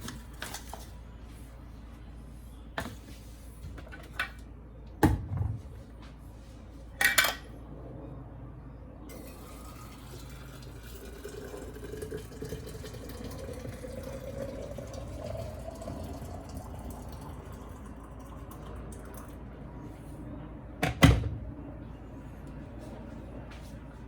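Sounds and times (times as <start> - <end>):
liquid pouring into a container: 9.1 - 19.4.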